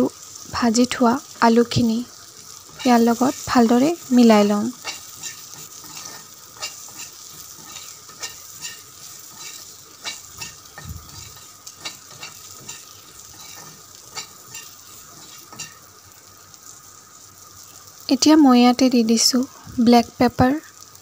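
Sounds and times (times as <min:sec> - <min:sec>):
potatoes sizzling in oil: 0:00.0 - 0:21.0
metal spatula scraping pan: 0:02.5 - 0:15.9.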